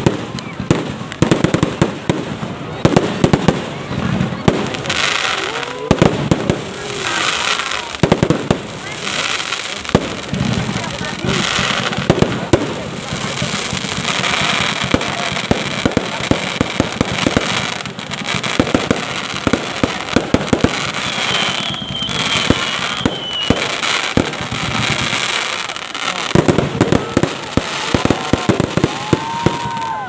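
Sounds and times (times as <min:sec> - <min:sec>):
fireworks bangs and crackling: 0:00.0 - 0:30.0
faint high whistle: 0:21.0 - 0:23.7.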